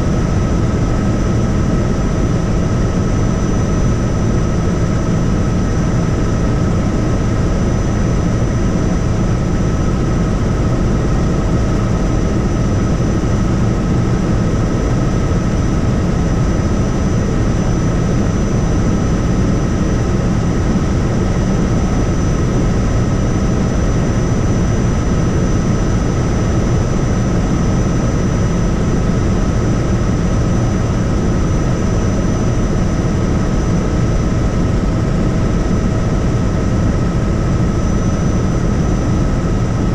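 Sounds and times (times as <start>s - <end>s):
helicopter rotor and engine noise: 0.0s - 39.9s
high engine whine: 0.0s - 39.9s.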